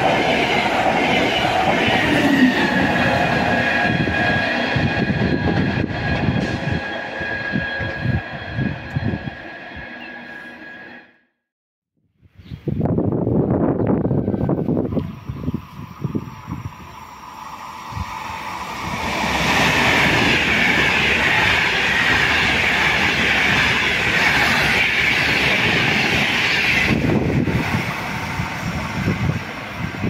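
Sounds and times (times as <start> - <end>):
train wheels on rail: 0.0 - 11.0, 13.9 - 30.0
rushing air: 12.6 - 30.0.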